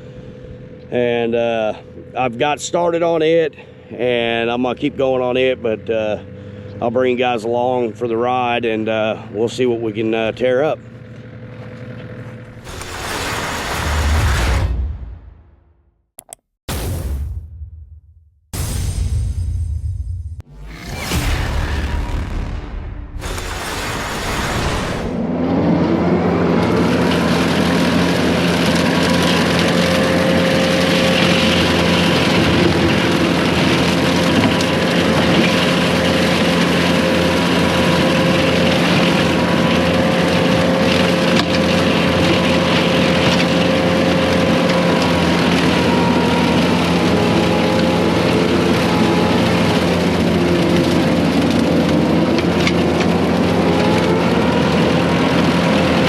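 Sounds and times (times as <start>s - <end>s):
diesel engine running: 0.0s - 15.4s, 20.4s - 56.0s
brush cutter whining: 10.0s - 14.1s, 23.2s - 56.0s.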